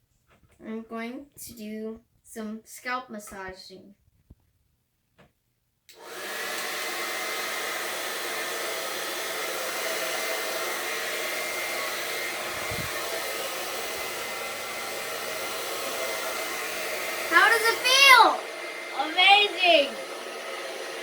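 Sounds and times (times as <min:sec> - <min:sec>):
hair dryer blowing: 0:05.9 - 0:21.0.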